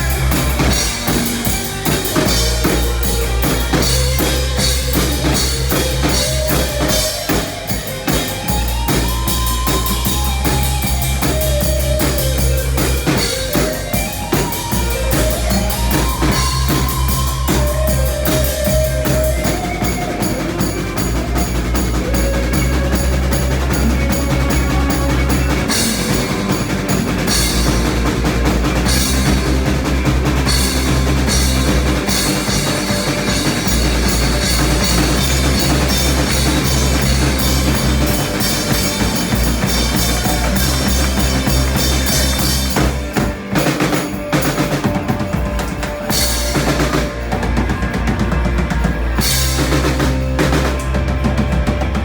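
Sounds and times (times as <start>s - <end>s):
bass: 0.0s - 52.0s
drum kit: 0.0s - 52.0s
live rock band playing: 0.0s - 52.0s.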